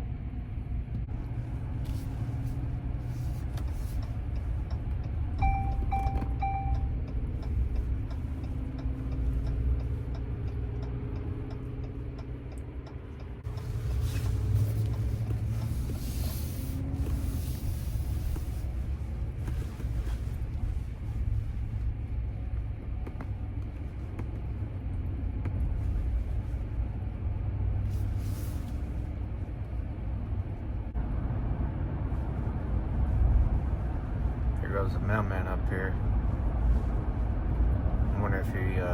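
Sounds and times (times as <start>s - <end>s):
road and engine rumble: 0.0s - 38.9s.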